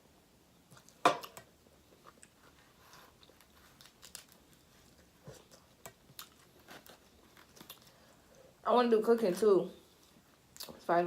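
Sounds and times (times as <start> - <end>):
small cracks and clicks: 3.2 - 4.6.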